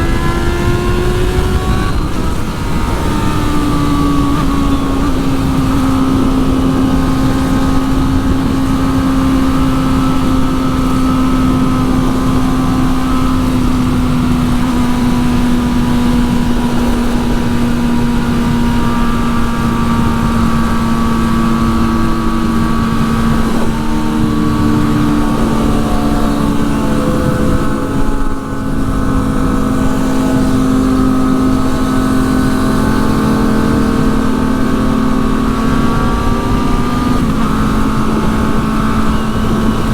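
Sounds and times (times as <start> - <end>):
motorcycle engine cruising: 0.0 - 39.9
wind rushing: 0.0 - 39.9.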